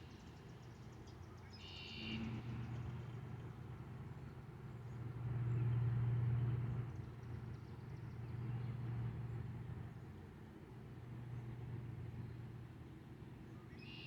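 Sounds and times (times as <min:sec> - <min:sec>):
passing vehicle hum: 0:04.6 - 0:07.3.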